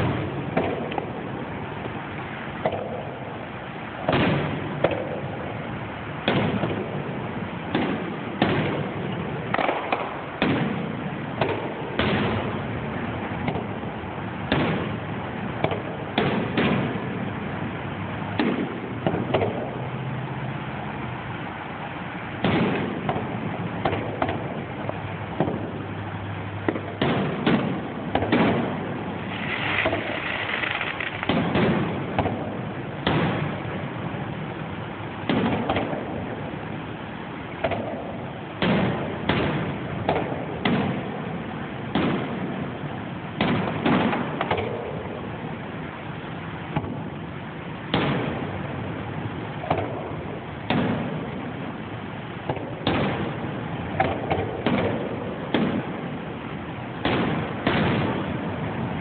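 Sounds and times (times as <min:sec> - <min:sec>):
steady background noise: 0:00.0 - 0:59.0
fireworks shells bursting: 0:26.7 - 0:33.8.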